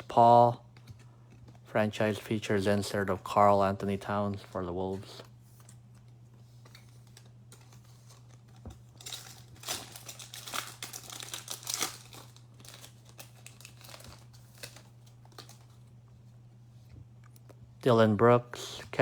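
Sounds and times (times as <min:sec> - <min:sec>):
cards ticking and rustling: 0:04.3 - 0:16.0
foil wrapper tearing and crinkling: 0:07.0 - 0:15.8.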